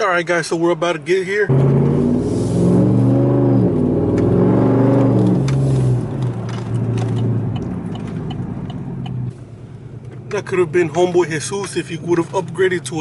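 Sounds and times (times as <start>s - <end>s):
pickup truck engine revving: 1.5s - 9.3s.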